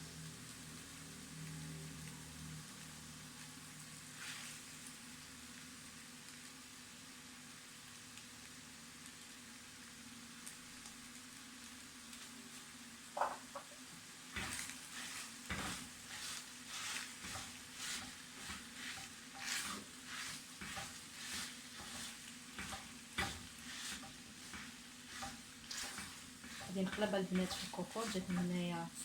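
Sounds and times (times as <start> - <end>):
spoon stirring in a pot: 14.3 - 28.6.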